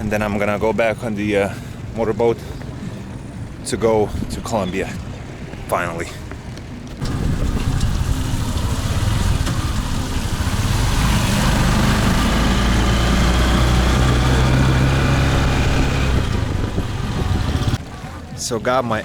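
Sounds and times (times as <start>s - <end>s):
small engine running: 7.0s - 17.8s.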